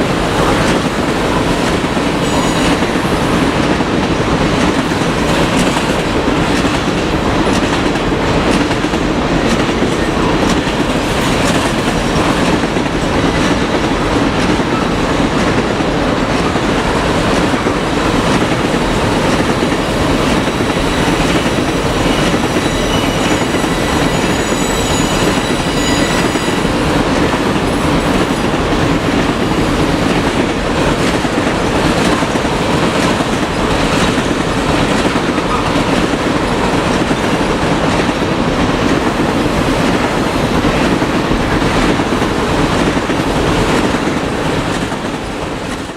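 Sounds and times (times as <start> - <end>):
clickety-clack over rail joints: 0.0 - 45.9
train wheels rumbling on rails: 0.0 - 45.9
faint high wheel squeal: 22.1 - 26.8.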